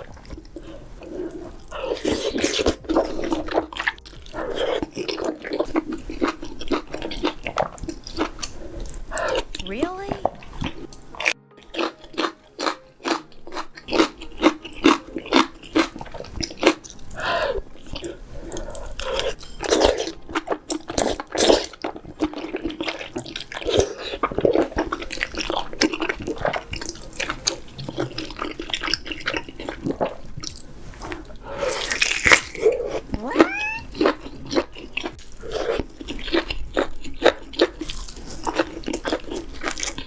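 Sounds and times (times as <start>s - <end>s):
crunchy bites and chewing: 0.0s - 9.6s, 10.2s - 40.0s.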